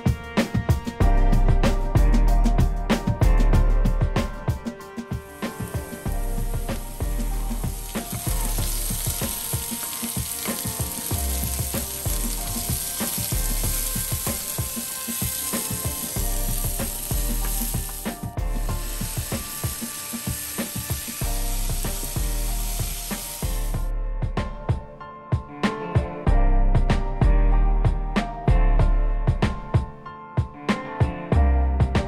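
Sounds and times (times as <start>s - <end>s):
background music with deep bass: 0.0s - 32.0s
vegetables sizzling in hot oil: 5.3s - 23.9s.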